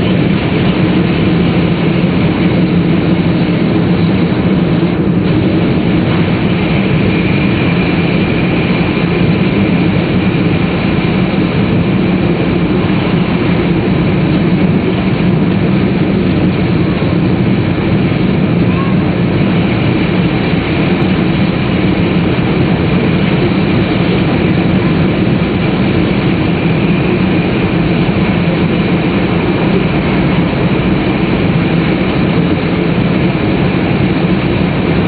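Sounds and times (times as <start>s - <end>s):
train interior low rumble: 0.0s - 35.0s.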